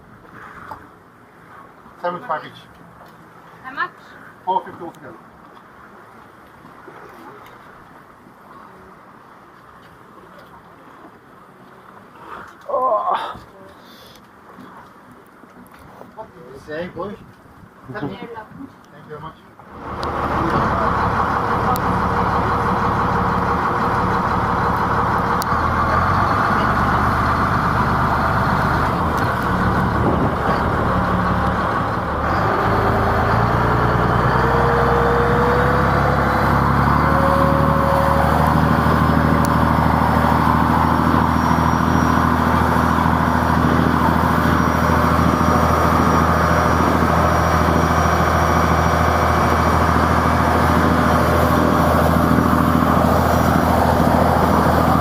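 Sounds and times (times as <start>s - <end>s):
boat engine revving: 19.6s - 55.0s.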